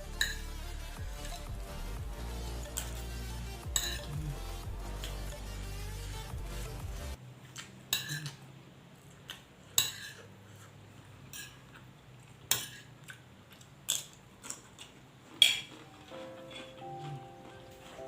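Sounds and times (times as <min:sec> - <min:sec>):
background music: 0:00.0 - 0:07.2, 0:16.0 - 0:18.0
cutlery clinking on a plate: 0:07.9 - 0:08.4, 0:11.3 - 0:11.6.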